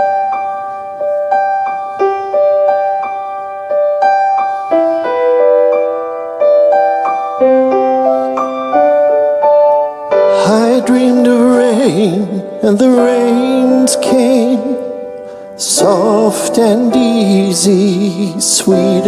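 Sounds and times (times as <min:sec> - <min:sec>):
piano broken chords: 0:00.0 - 0:19.0.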